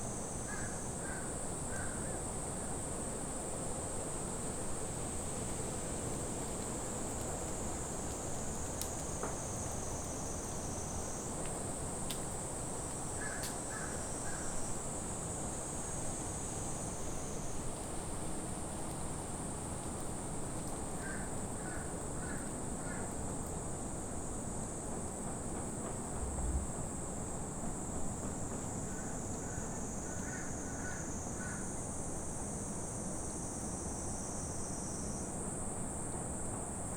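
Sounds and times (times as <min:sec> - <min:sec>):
high insect drone: 0:25.9 - 0:36.8.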